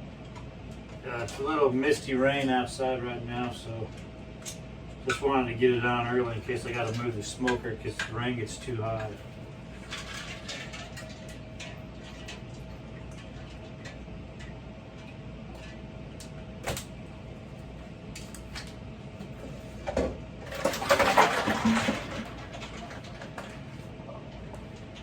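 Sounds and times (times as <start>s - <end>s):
faint steady hum: 0.0s - 25.0s
rustling and clatter: 9.8s - 12.5s, 19.9s - 25.0s.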